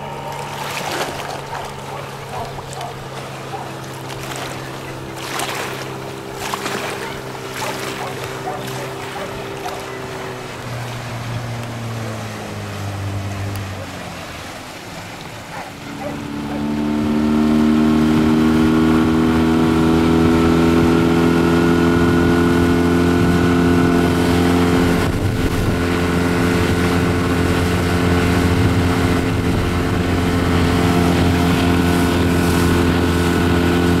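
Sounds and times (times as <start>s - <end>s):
outboard motor running: 0.0s - 34.0s.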